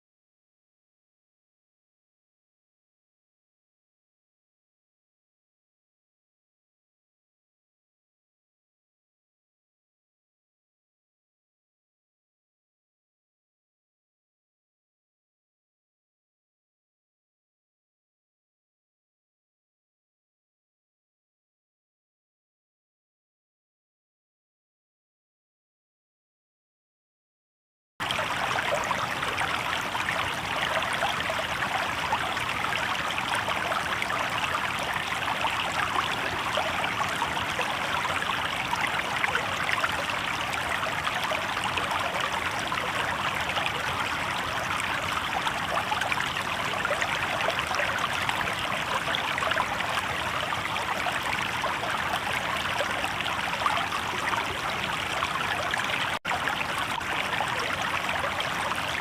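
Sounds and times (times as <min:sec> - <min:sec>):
river water babbling: 0:28.0 - 0:59.0.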